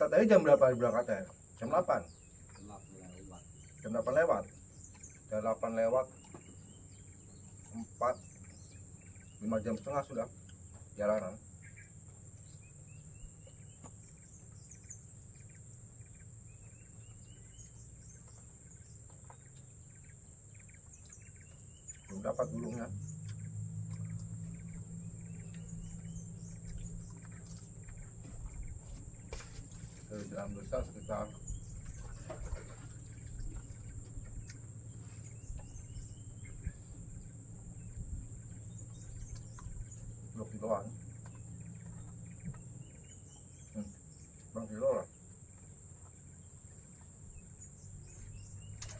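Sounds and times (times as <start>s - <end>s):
insects droning: 0.0s - 48.9s.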